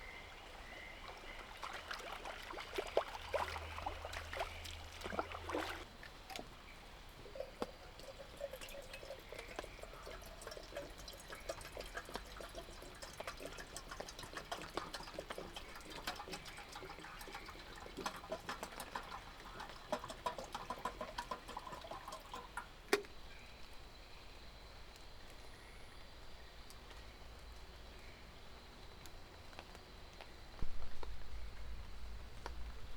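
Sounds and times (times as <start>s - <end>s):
water pouring and trickling: 0.0s - 23.2s.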